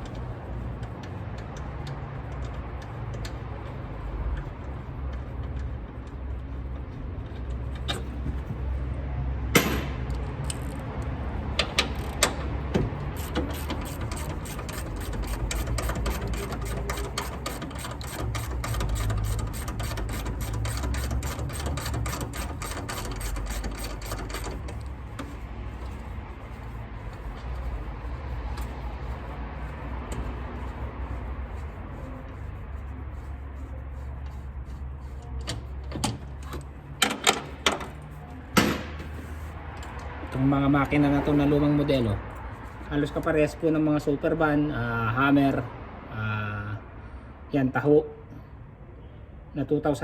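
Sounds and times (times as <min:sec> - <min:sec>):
ratchet wrench clicking: 0:13.1 - 0:25.4.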